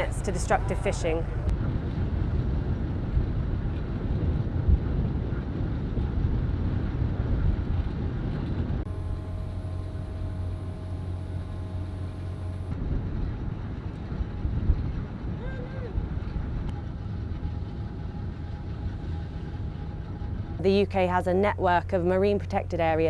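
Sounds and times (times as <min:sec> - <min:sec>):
low hum: 0:00.0 - 0:23.0
ship machinery rumbling: 0:00.0 - 0:23.0
wind buffeting microphone: 0:00.0 - 0:23.0
faint steady tones: 0:08.9 - 0:14.5, 0:16.6 - 0:23.0.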